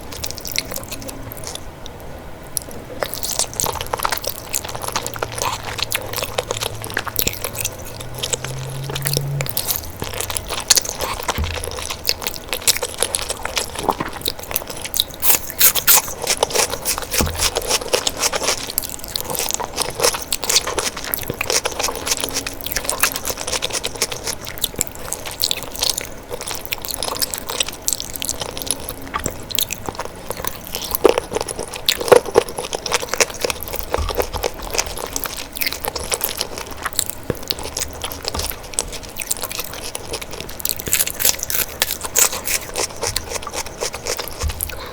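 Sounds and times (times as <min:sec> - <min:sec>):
person chewing crunchy food: 0:00.0 - 0:44.9.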